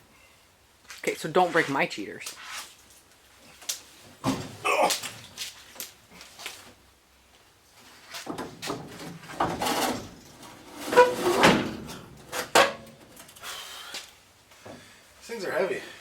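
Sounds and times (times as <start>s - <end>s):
steel door clunking and scraping: 8.3s - 13.4s.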